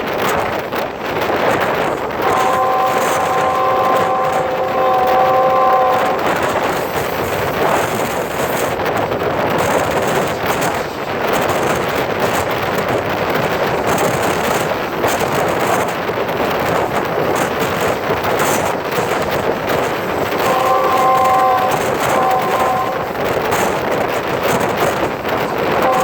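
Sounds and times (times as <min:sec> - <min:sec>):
train wheels clattering on rails: 0:00.0 - 0:26.0
wind on microphone: 0:00.0 - 0:26.0
train horn chord: 0:02.2 - 0:08.0, 0:20.3 - 0:23.8, 0:25.7 - 0:26.0.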